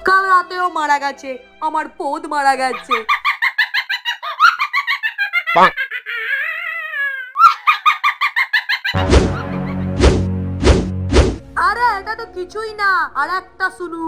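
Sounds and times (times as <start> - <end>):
background music: 0.0 - 3.2, 9.0 - 14.0
woman cackling laughter: 2.7 - 6.6, 7.4 - 9.8.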